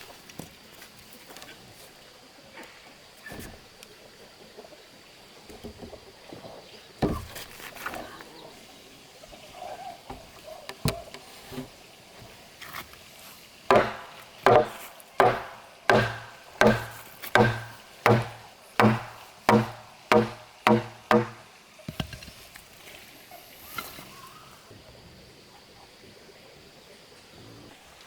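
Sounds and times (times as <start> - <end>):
hand tool striking wood: 13.7 - 22.1.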